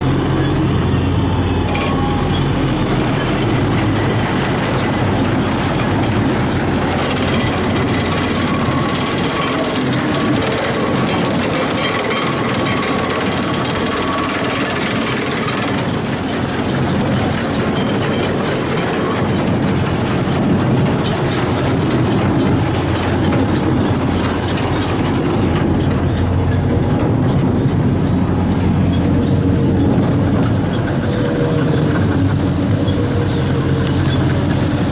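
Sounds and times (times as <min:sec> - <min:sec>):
baler mechanism clattering: 0:00.0 - 0:34.9
tractor engine running: 0:00.0 - 0:34.9.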